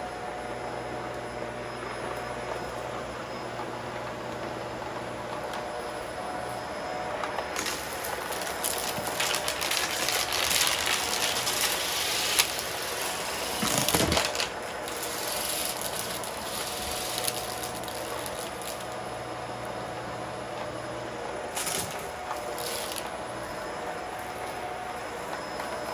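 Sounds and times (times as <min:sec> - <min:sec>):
vacuum cleaner running: 0:00.0 - 0:25.9
debris crackling and rattling: 0:07.6 - 0:19.0.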